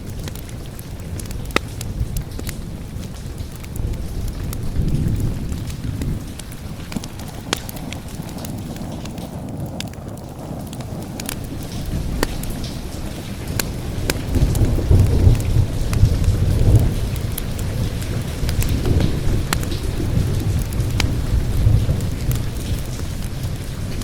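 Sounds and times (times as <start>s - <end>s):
rolling thunder rumbling: 0.0s - 24.0s
steady rain: 0.0s - 24.0s
wood fire crackling: 0.0s - 24.0s.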